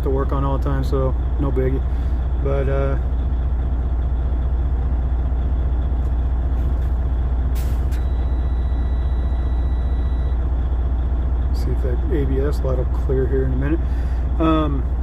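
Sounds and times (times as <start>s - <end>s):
diesel truck engine idling: 0.0s - 15.0s
faint high steady tone: 8.0s - 10.4s.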